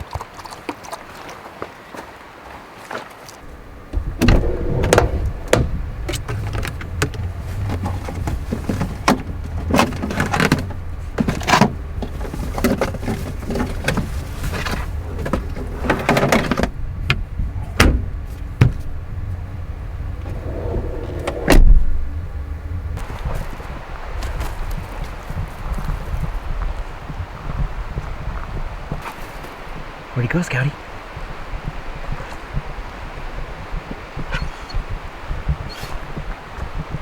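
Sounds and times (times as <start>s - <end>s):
low engine and road drone: 3.4s - 25.2s
rattles and clunks from vehicle: 3.4s - 26.6s.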